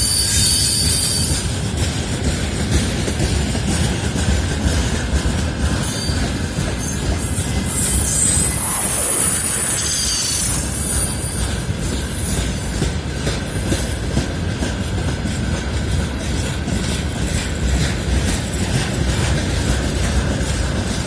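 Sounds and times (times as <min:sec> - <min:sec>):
freight train rumbling past: 0:00.0 - 0:21.0
wheels clicking over rail joints: 0:11.4 - 0:21.0.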